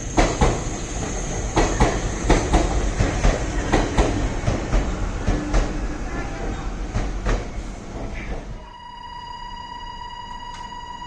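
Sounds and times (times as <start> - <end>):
train rumble: 0.0 - 8.6.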